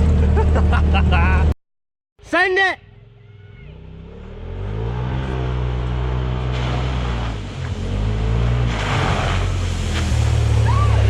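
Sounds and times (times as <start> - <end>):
engine pulling under heavy throttle: 0.0 - 1.5.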